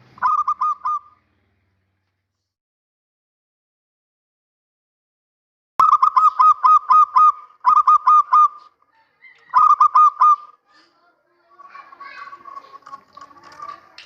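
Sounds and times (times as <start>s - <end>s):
dove staccato cooing: 0.2s - 1.2s, 5.8s - 10.6s, 11.6s - 14.0s
faint mixed background sound: 5.8s - 14.0s.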